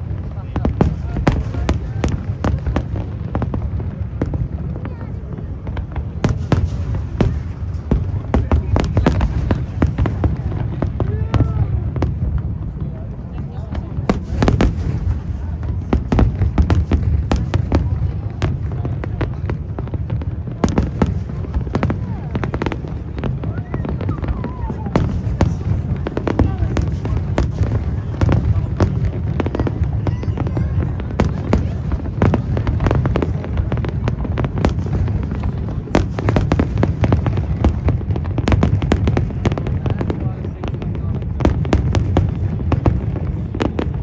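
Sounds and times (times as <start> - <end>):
fireworks bursting with sharp bangs: 0.0 - 44.0.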